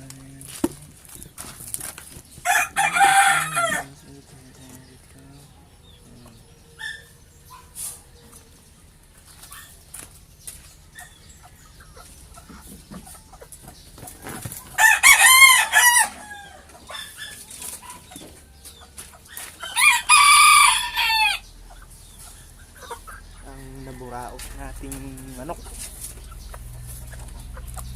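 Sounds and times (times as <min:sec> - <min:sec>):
rooster crowing: 0:02.4 - 0:04.1, 0:14.8 - 0:16.8, 0:19.6 - 0:21.5.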